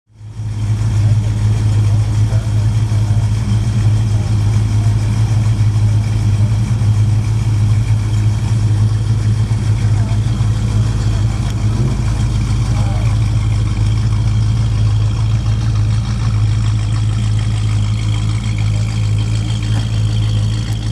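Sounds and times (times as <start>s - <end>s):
car engine idling: 0.1s - 20.9s
faint voices: 0.4s - 20.9s.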